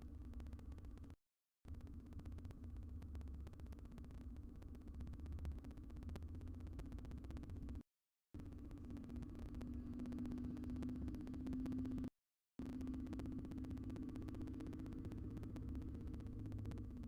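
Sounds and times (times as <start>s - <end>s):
crackling static: 0.0s - 7.8s, 8.4s - 17.0s
electrical hum with low rumble: 0.0s - 7.8s, 8.4s - 17.0s.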